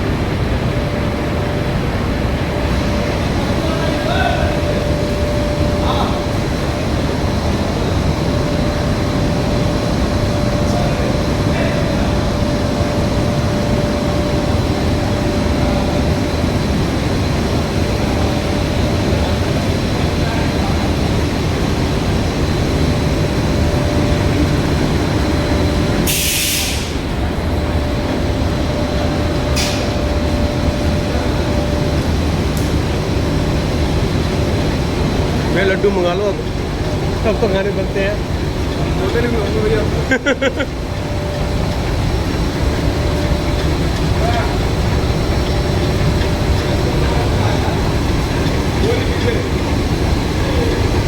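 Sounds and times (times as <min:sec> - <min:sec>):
thin constant whine: 0:00.0 - 0:26.1, 0:26.8 - 0:51.0
machine mechanical drone: 0:00.0 - 0:51.0
sharp hiss: 0:26.0 - 0:27.0.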